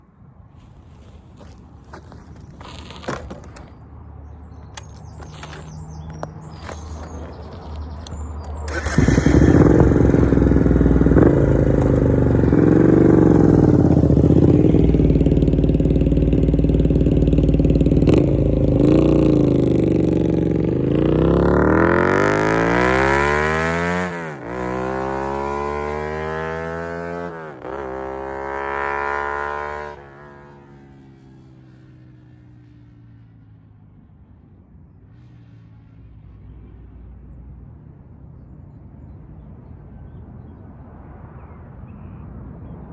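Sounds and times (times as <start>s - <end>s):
motorcycle engine accelerating: 1.0s - 33.0s.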